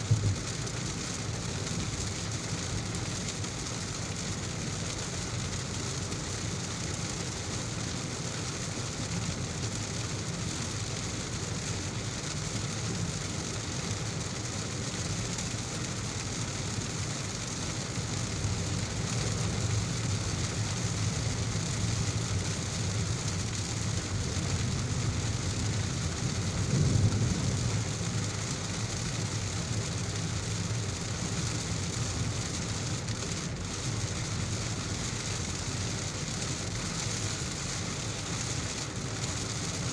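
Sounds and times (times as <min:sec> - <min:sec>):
car driving on wet road: 0:00.0 - 0:39.9
heavy rain: 0:00.0 - 0:39.9.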